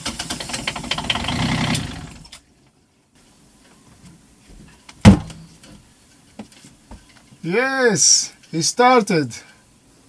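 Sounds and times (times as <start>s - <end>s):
loud clunk: 5.0s - 5.4s.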